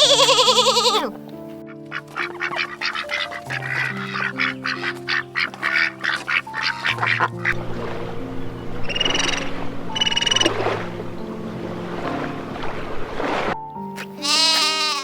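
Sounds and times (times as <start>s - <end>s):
ducks quacking: 0.0s - 1.1s, 1.7s - 7.6s, 14.0s - 15.0s
background music with held notes: 0.0s - 15.0s.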